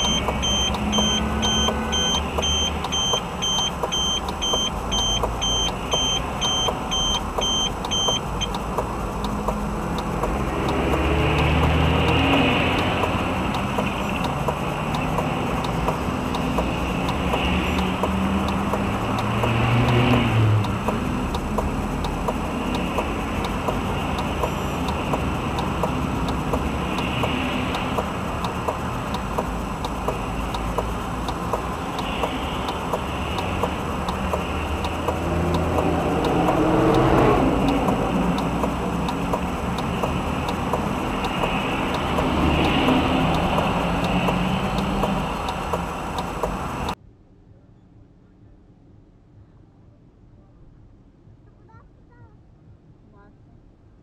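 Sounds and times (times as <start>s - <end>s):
high electronic beeping: 0.0s - 27.7s
car engine and road noise: 0.0s - 54.0s.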